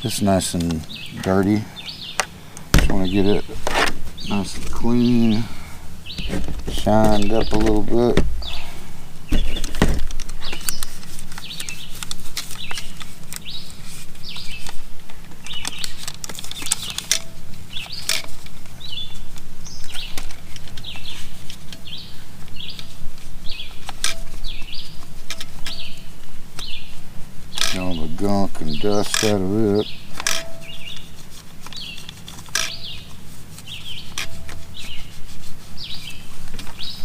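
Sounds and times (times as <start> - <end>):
sharp plastic clicks: 14.3 - 18.6, 27.5 - 28.0, 28.9 - 29.5
scratchy scrubbing strokes: 31.1 - 36.4.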